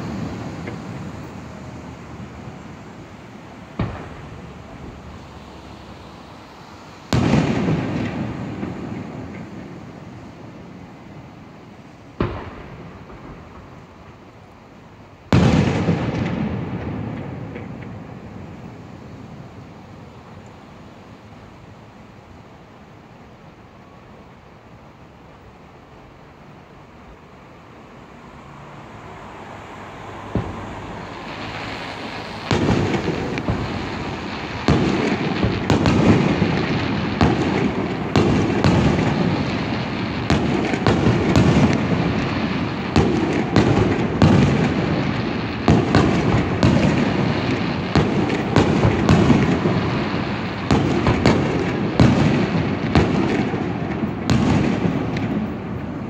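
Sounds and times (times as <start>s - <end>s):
fireworks booms and bangs: 0.0s - 3.0s, 3.7s - 5.2s, 7.1s - 11.2s, 12.1s - 14.2s, 15.3s - 19.2s, 30.2s - 56.0s.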